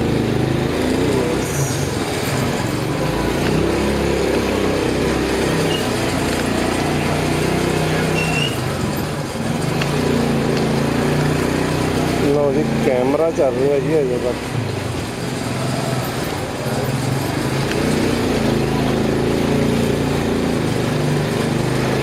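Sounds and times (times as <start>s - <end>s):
motorcycle engine running: 0.0s - 22.0s
street noise: 0.0s - 22.0s.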